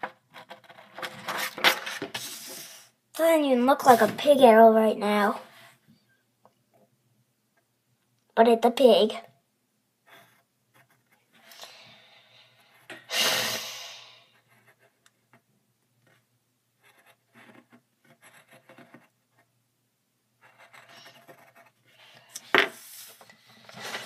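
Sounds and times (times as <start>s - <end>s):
pencil scratching on paper: 3.8s - 4.3s, 10.0s - 11.5s, 14.3s - 15.4s, 16.0s - 19.5s, 20.4s - 23.2s.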